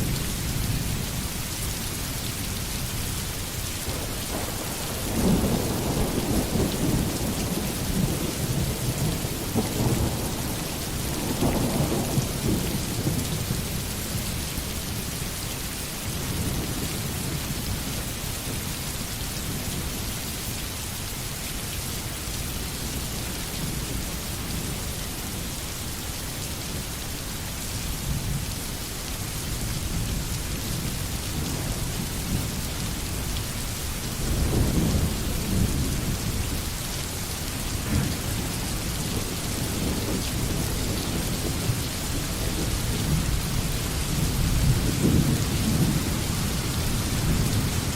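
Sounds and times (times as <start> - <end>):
steady rain: 0.0 - 47.9
low rolling thunder: 3.9 - 14.1, 34.1 - 36.7, 37.6 - 47.9.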